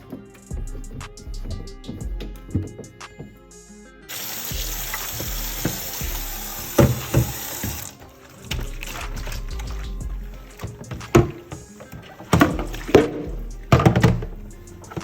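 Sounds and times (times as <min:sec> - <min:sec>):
water running from a tap: 0:04.1 - 0:15.0
knocks in a sink: 0:06.8 - 0:07.8, 0:10.9 - 0:11.6, 0:12.3 - 0:14.4.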